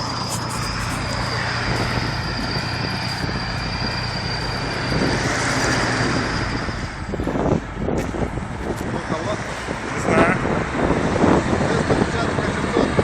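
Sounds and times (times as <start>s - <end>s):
thin high whine: 0.0s - 8.6s
heavy vehicle engine running: 0.0s - 13.0s.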